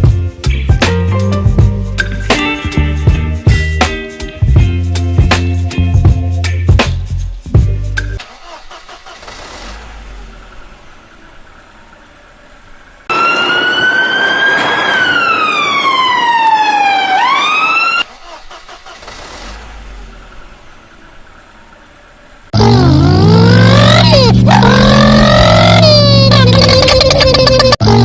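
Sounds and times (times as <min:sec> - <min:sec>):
cartoon engine whine: 0:13.1 - 0:18.7, 0:22.6 - 0:28.0
cartoon engine low rumbling: 0:22.5 - 0:28.0.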